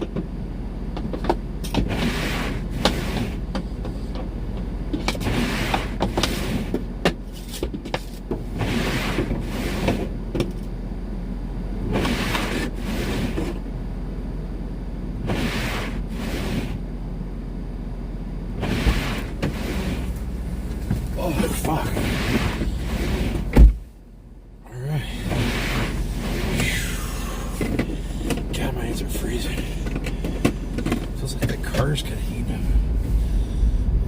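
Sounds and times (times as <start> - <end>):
steady low hum: 0.0 - 34.0
snow scraper scraping windshield: 1.2 - 4.2, 4.9 - 10.2, 11.8 - 13.6, 15.2 - 16.8, 18.6 - 23.8, 25.0 - 33.5.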